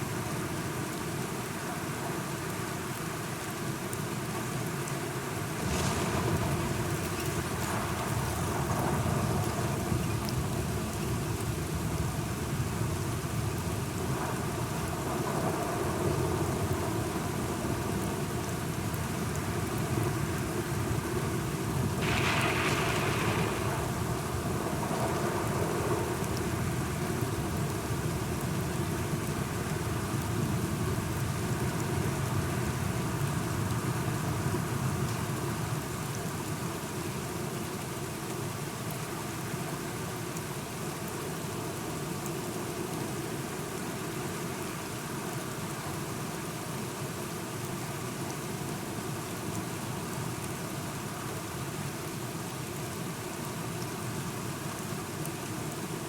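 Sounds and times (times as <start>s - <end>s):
steady rain falling: 0.0s - 56.0s
deep rumble of thunder: 5.6s - 19.2s, 21.8s - 28.6s.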